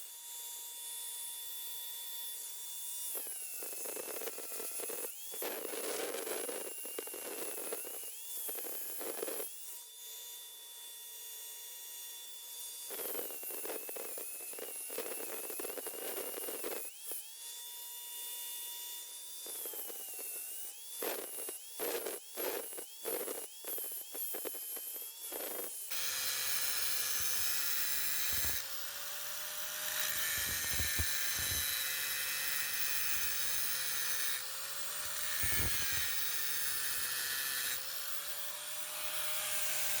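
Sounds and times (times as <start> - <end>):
lower steady tool whine: 0.0 - 40.0
grinder whining: 2.4 - 10.5, 12.7 - 17.4, 19.3 - 40.0
grinding on metal: 21.1 - 40.0.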